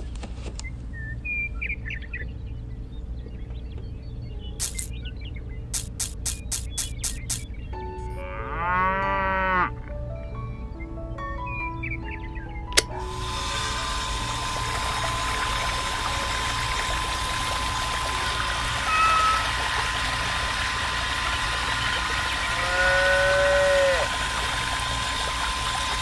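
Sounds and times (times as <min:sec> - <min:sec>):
electric water pump whine: 0:04.6 - 0:04.9, 0:05.8 - 0:07.5, 0:12.8 - 0:26.0
water jet splashing: 0:04.6 - 0:04.9, 0:05.8 - 0:07.5, 0:13.0 - 0:26.0
animal-like calls: 0:18.7 - 0:20.5, 0:21.6 - 0:24.4.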